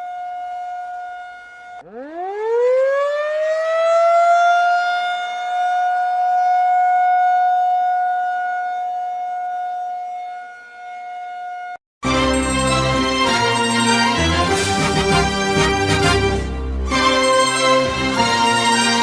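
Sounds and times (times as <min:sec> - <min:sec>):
warning siren wailing: 0:00.0 - 0:11.8.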